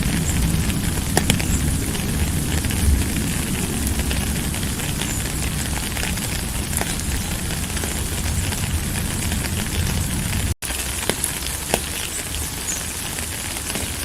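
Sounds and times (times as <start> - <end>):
low rumble: 0.0 - 10.6
sharp raindrop hits: 0.0 - 14.0
steady rainfall hiss: 0.0 - 14.0.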